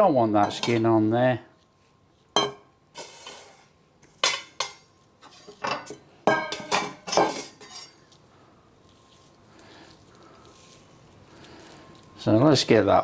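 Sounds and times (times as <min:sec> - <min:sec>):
kitchenware clinking: 0:00.0 - 0:01.0, 0:02.4 - 0:08.1.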